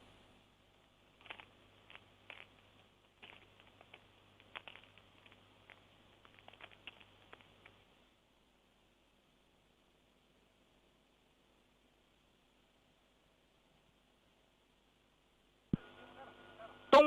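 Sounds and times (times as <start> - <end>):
faint irregular clicks: 0.0 - 8.0
faint low hum: 0.0 - 17.0.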